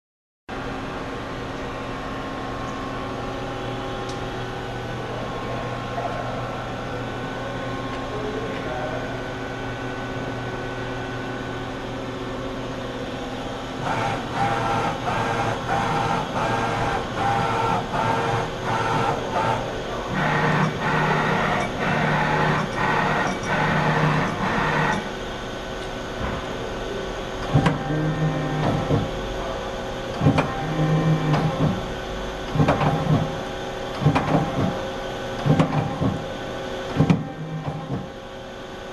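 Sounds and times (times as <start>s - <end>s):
lathe machine hum: 0.6s - 38.9s.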